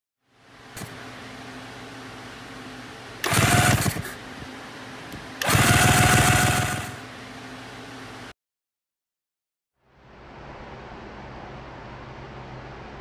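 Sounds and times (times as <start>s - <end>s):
two-stroke motorcycle engine whine: 3.2s - 4.2s, 5.4s - 7.1s
low hum: 9.8s - 13.0s.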